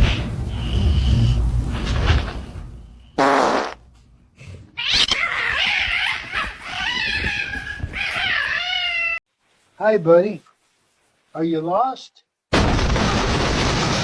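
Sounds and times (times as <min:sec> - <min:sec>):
short buzzy burst: 0:03.2 - 0:03.8
pet animal crying: 0:04.8 - 0:09.2.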